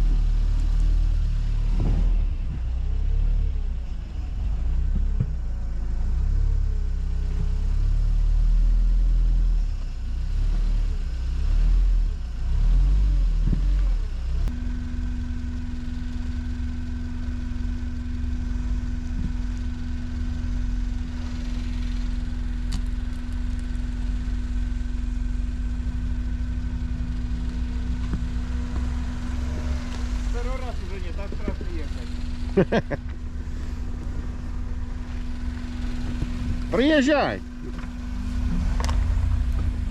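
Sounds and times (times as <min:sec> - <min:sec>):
atv engine rumbling: 0:00.0 - 0:39.9.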